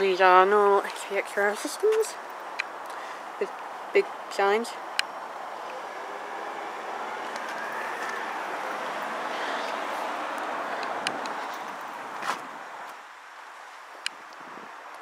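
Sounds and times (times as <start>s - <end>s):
vehicle driving past: 5.5s - 12.2s.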